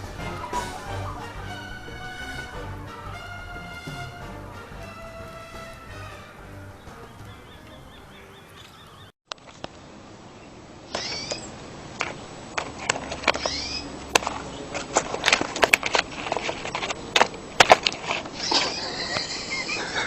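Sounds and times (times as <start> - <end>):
short arching animal calls: 0.0 - 6.5, 10.9 - 11.6, 13.3 - 14.0, 18.3 - 19.7.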